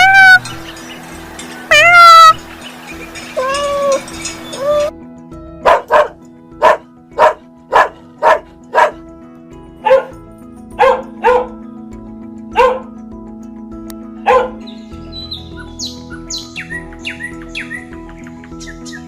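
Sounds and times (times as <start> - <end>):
background music drone: 0.0 - 19.0
dog barking: 5.6 - 9.0, 9.8 - 10.2, 10.8 - 11.6, 12.5 - 13.0, 14.2 - 14.6.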